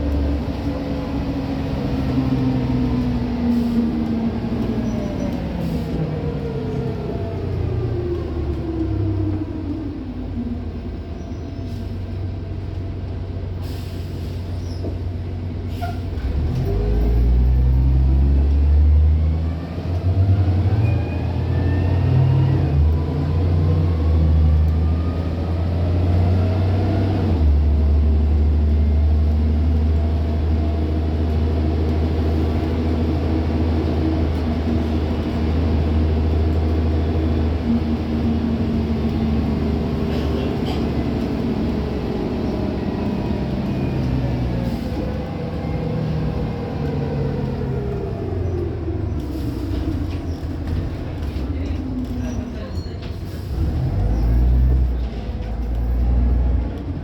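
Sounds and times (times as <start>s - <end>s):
bus diesel engine: 0.0s - 57.0s.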